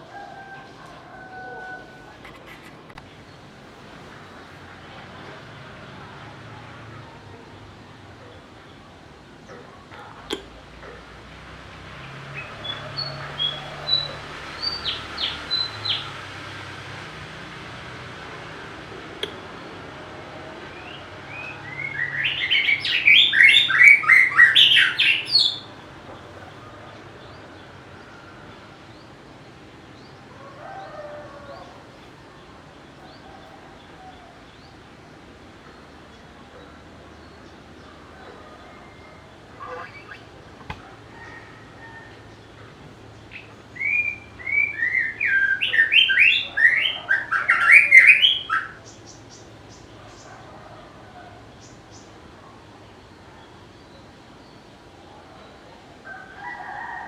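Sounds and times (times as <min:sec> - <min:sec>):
faint lower bird call: 0:30.6 - 0:49.0
bird singing whistled notes: 0:43.4 - 0:48.8.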